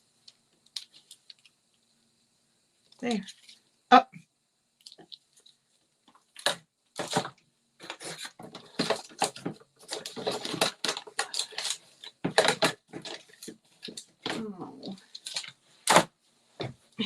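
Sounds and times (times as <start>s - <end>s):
clicks taps and rustles: 0.2s - 1.6s, 4.8s - 16.8s.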